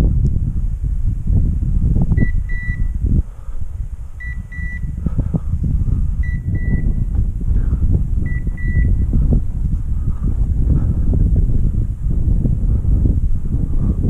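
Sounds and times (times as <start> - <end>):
wind rumble on microphone: 0.0 - 14.0
high beeps from dog collar: 2.2 - 3.0, 4.2 - 5.0, 6.2 - 7.0, 8.3 - 9.0.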